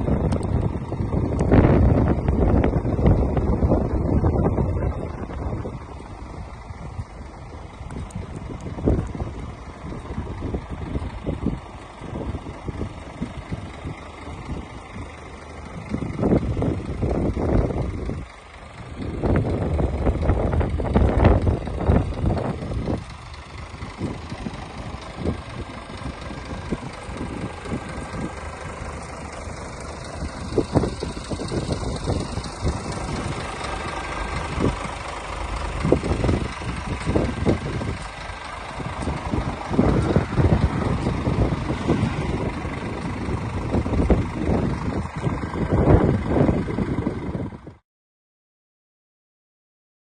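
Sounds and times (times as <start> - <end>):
diesel engine idling: 0.0 - 47.8.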